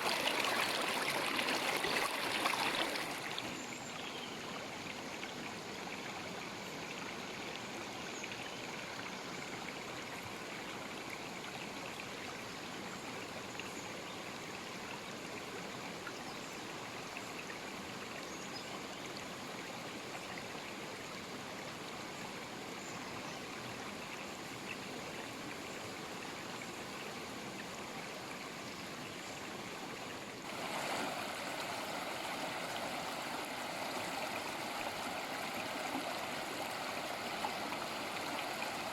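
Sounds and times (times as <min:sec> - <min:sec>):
river water rushing: 0:00.0 - 0:03.6, 0:30.4 - 0:38.9.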